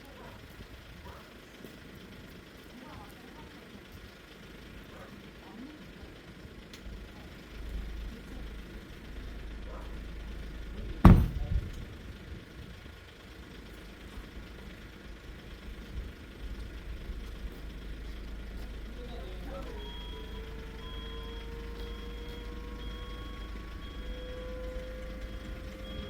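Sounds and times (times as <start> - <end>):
truck engine rumbling: 0.0 - 26.0
small knock: 11.0 - 11.9
loud bang: 11.0 - 12.0.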